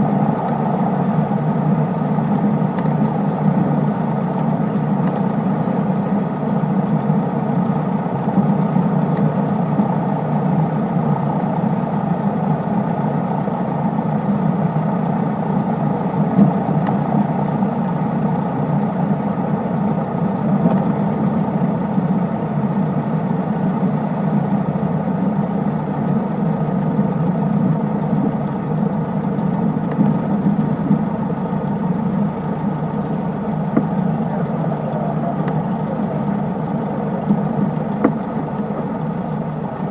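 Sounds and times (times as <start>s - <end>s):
propeller plane engine drone: 0.0s - 39.9s.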